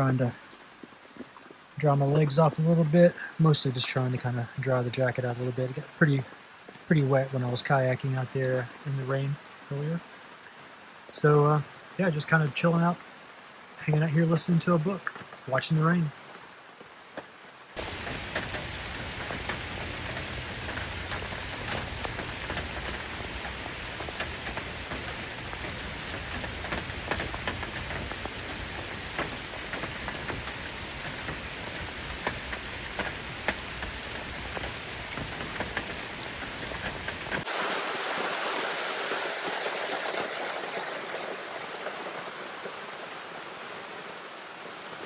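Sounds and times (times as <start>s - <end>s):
steady rain falling: 0.0s - 45.0s
bright rushing hiss: 17.7s - 45.0s.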